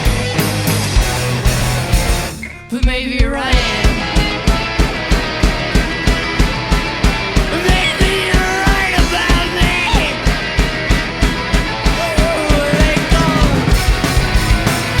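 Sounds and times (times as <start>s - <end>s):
drum kit beat: 0.0s - 15.0s
electric guitars and bass: 0.0s - 15.0s.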